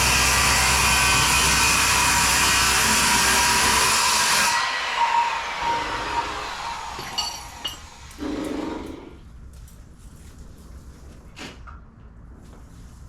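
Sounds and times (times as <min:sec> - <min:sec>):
power tool winding down: 0:00.0 - 0:09.0.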